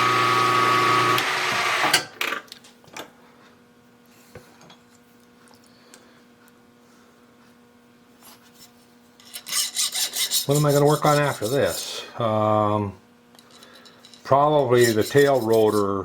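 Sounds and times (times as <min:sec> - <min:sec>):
milling machine motor whine: 0:00.0 - 0:02.0.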